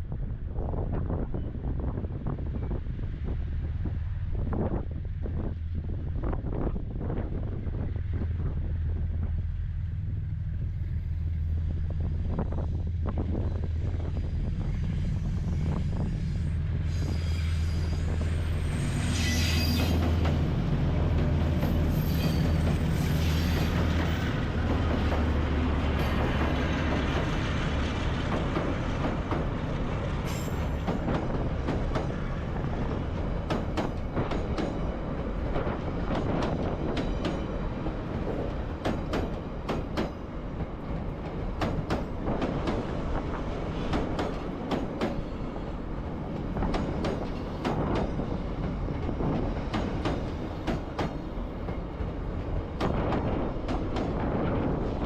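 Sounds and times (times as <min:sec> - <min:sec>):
locomotive engine drone: 0:02.3 - 0:36.9
train wheels clacking on rails: 0:19.5 - 0:55.0.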